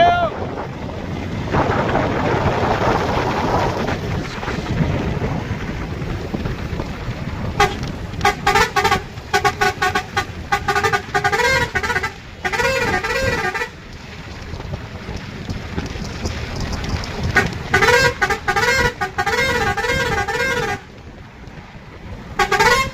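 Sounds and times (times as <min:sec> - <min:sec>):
road and wind noise: 0:00.0 - 0:22.9
vehicle horn honking: 0:07.6 - 0:13.8, 0:17.3 - 0:20.9, 0:22.4 - 0:22.9.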